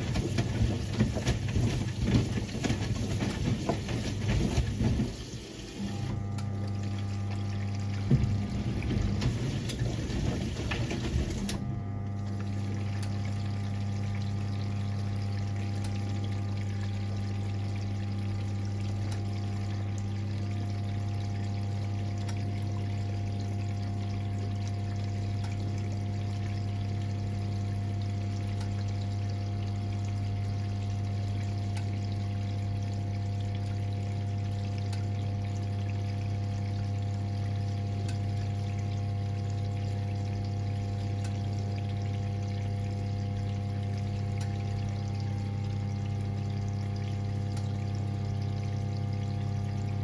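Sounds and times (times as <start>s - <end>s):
water running: 0.0s - 11.6s, 12.2s - 50.0s
washing machine sloshing and clatter: 0.0s - 50.0s
electric hum: 5.8s - 50.0s.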